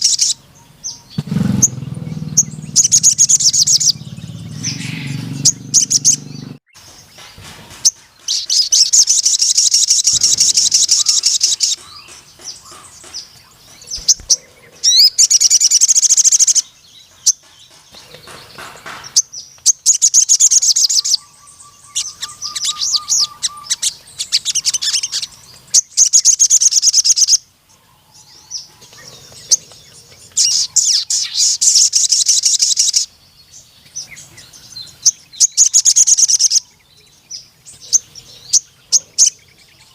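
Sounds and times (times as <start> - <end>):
sunbird singing trilled phrases: 0.0 - 7.2, 7.8 - 18.3, 19.2 - 27.5, 28.8 - 39.9.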